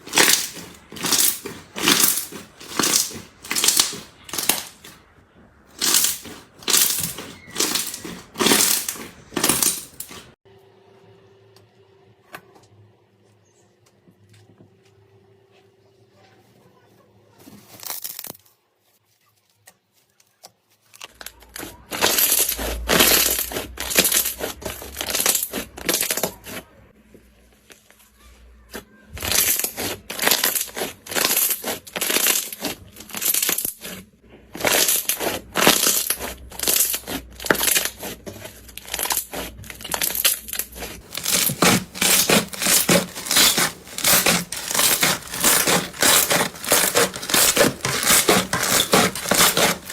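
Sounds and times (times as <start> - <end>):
hands squishing slime: 0.0 - 5.0, 5.8 - 10.4, 41.0 - 49.9.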